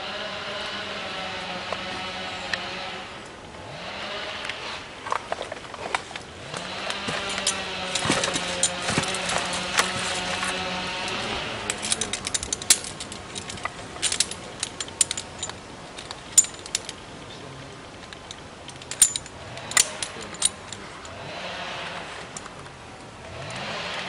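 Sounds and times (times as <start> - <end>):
sharp clicks and knocks: 5.1 - 17.0
chainsaw engine running: 6.4 - 14.3.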